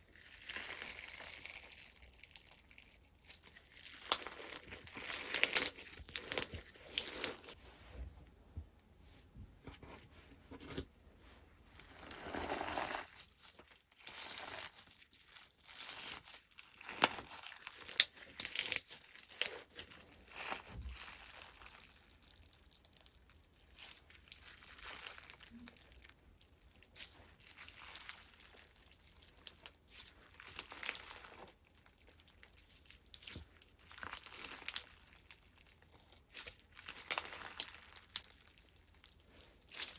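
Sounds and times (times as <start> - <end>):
slime crackling and popping: 0.1 - 7.6, 11.8 - 39.9.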